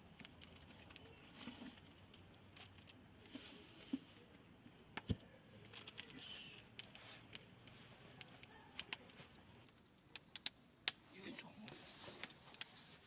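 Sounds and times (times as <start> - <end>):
fire crackling with pops: 6.8 - 12.7.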